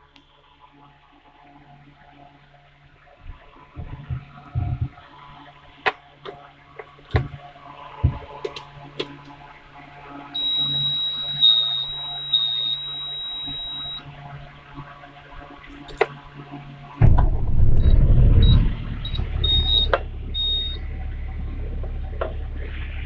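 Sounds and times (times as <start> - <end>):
low steady hum: 1.9 - 23.0
warning buzzer tone: 10.4 - 14.2, 17.8 - 20.8.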